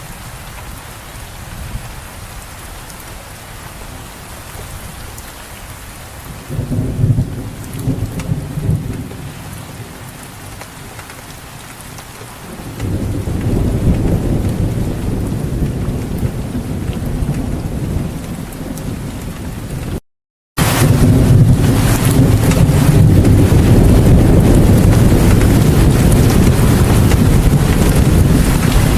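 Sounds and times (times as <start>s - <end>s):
steady rain falling: 0.0s - 20.0s, 20.6s - 28.9s
low rumble of thunder: 6.2s - 11.0s, 12.4s - 20.0s, 20.6s - 28.9s.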